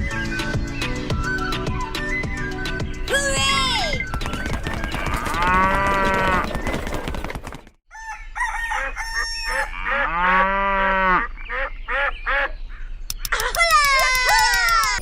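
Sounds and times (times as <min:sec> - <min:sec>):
drawn-out animal call: 0:03.4 - 0:07.6.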